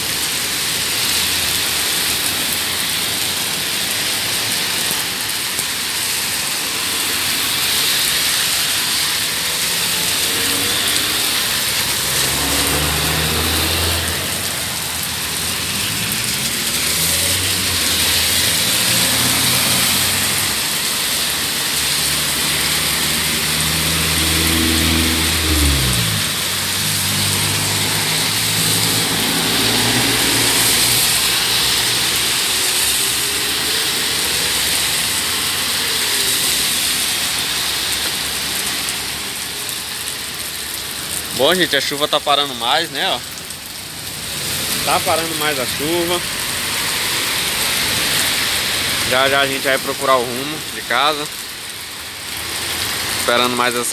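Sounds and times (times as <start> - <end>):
heavy rain pouring: 0.0 - 53.9
car engine: 6.2 - 39.8.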